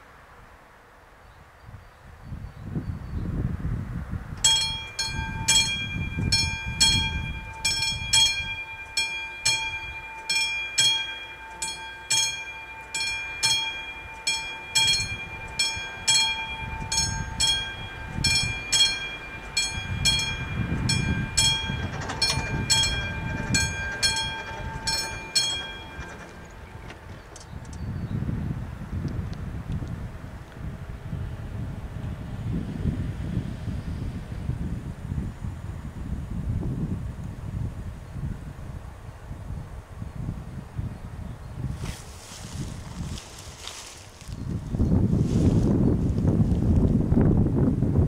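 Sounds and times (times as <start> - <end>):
level crossing warning bell: 4.4 - 27.5.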